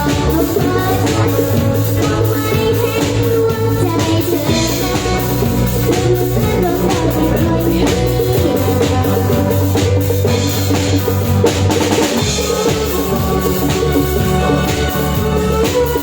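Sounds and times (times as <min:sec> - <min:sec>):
bass: 0:00.0 - 0:16.0
drum kit: 0:00.0 - 0:16.0
guitar: 0:00.0 - 0:16.0
person singing: 0:00.0 - 0:16.0.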